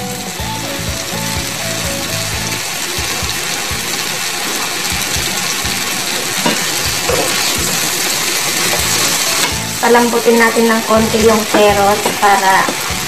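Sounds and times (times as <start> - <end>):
vegetables sizzling in a frying pan: 0.0 - 13.0
wooden spatula stirring: 6.1 - 13.0
spatula knocking against pan: 10.9 - 13.0.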